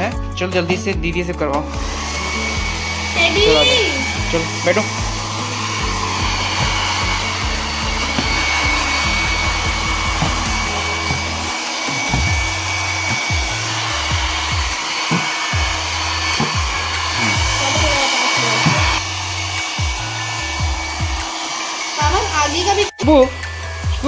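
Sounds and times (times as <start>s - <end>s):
background music with bass beat: 0.0s - 14.9s
hair dryer running: 1.6s - 24.0s.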